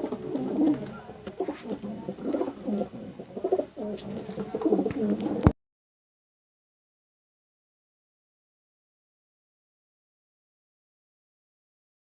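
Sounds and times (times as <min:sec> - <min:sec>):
pigeons cooing: 0:00.0 - 0:05.5.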